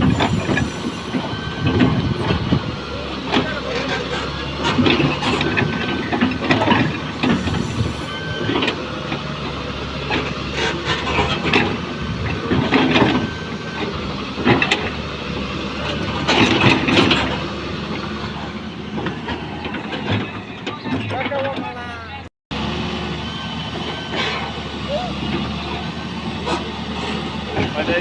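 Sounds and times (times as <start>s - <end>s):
excavator diesel engine: 0.0s - 28.0s
clanks and scrapes of digging: 3.3s - 9.3s, 10.0s - 15.0s, 15.8s - 17.5s, 26.4s - 28.0s.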